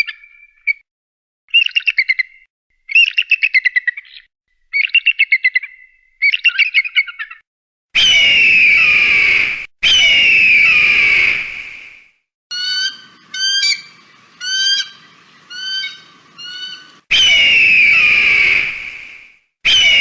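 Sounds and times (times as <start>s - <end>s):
eagle screams: 8.0s - 11.9s, 12.5s - 19.1s, 19.7s - 20.0s
eagle chittering: 12.5s - 18.6s.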